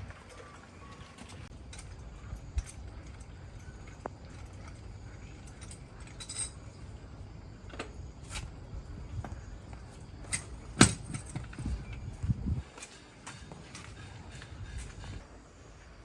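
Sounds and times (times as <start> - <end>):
metallic clinks of tools: 5.4 - 6.7.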